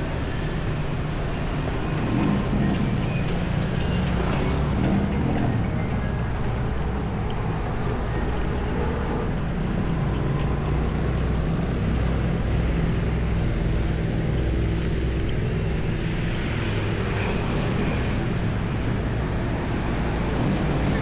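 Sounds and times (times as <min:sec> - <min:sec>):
road noise: 0:00.0 - 0:21.0
vehicle engines humming: 0:00.0 - 0:21.0.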